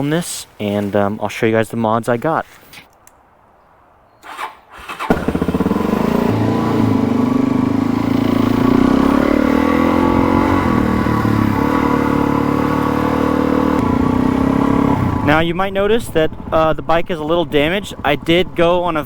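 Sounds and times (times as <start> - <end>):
motorcycle engine running: 5.1 - 15.5.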